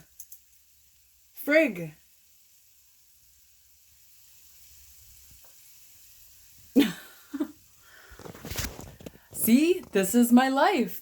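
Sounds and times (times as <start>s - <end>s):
food sizzling in a pan: 0.0s - 11.0s
person speaking: 9.3s - 11.0s.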